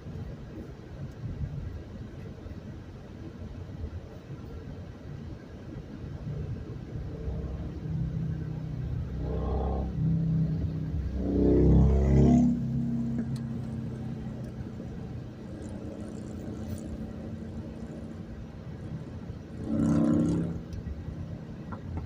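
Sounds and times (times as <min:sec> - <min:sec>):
traffic rumble: 0:00.0 - 0:22.0
loud vehicle passing: 0:07.0 - 0:21.8.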